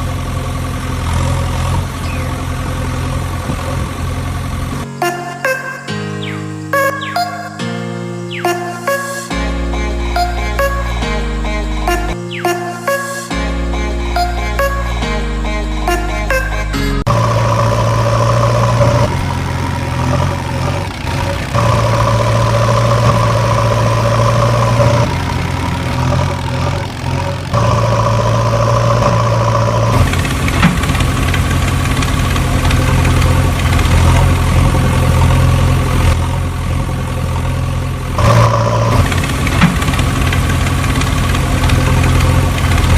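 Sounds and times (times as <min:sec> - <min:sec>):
heavy engine idling: 0:00.0 - 0:04.8, 0:15.8 - 0:42.9.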